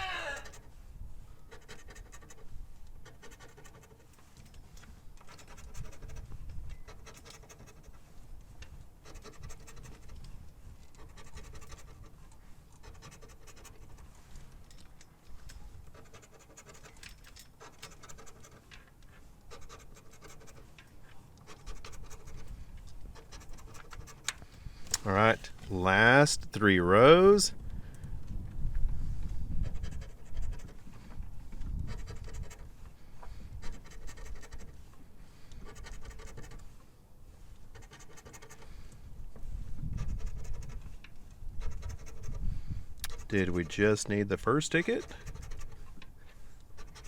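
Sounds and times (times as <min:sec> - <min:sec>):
scratch-off ticket being scratched: 0:01.5 - 0:04.1, 0:05.3 - 0:06.2, 0:06.9 - 0:08.0, 0:09.1 - 0:10.1, 0:11.0 - 0:12.2, 0:12.8 - 0:14.0, 0:15.9 - 0:17.0, 0:17.6 - 0:18.7, 0:19.5 - 0:20.8, 0:21.4 - 0:22.5, 0:23.1 - 0:24.3, 0:35.6 - 0:36.6, 0:37.7 - 0:38.7, 0:41.6 - 0:42.4, 0:43.1 - 0:45.8.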